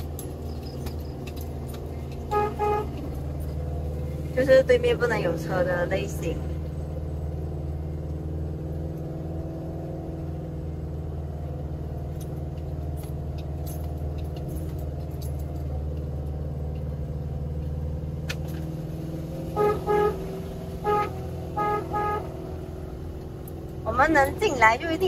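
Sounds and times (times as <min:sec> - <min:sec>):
vehicle engine running: 0:00.0 - 0:25.0
vehicle horn beeps: 0:02.3 - 0:03.1, 0:19.5 - 0:22.5.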